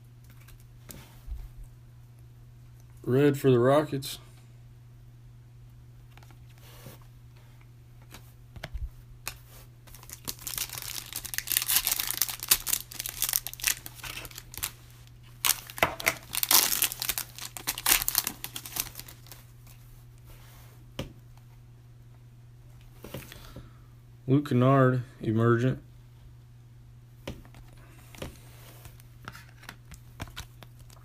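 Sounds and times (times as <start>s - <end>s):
wrapper tearing and crinkling: 9.2s - 19.4s.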